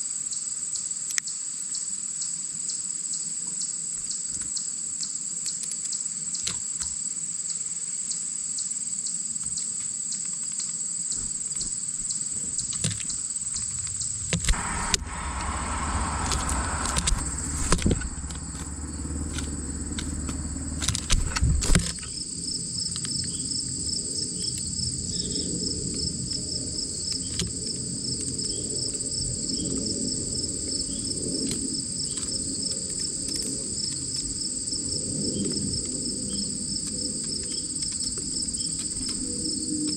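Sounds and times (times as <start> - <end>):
crickets chirring: 0.0 - 39.9
fast pulsing insect trill: 10.8 - 39.7
rustling near microphone: 11.1 - 22.1.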